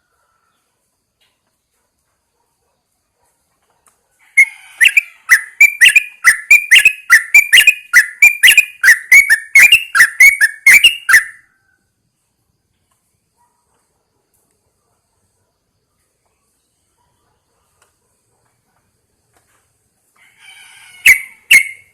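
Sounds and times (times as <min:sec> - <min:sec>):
bird whistled calls: 0:04.3 - 0:11.5, 0:21.0 - 0:21.9.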